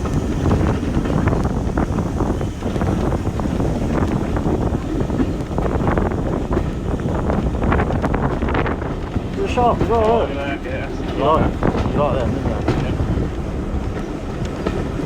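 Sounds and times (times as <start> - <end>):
wind buffeting microphone: 0.0 - 15.0
small irregular clicks: 11.6 - 15.0.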